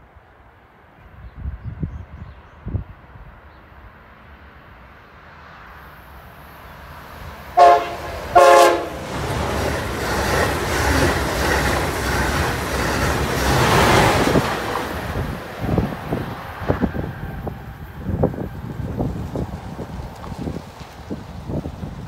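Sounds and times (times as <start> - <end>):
train passing close by: 0.0 - 22.0
train horn blasts: 7.6 - 9.2.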